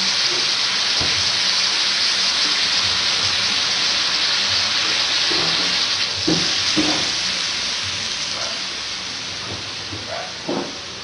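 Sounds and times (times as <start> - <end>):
liquid hissing on hot metal: 0.0 - 11.0
meat sizzling in a wok: 0.0 - 11.0
knock: 10.5 - 10.8.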